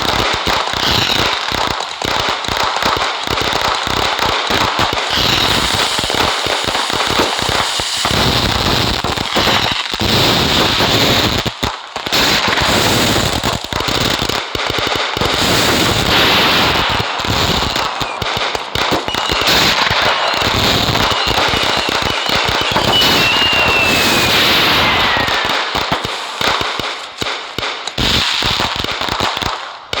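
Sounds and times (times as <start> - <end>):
firecrackers crackling and popping: 0.0 - 30.0
firework whistle falling in pitch: 4.8 - 9.8, 16.2 - 27.0.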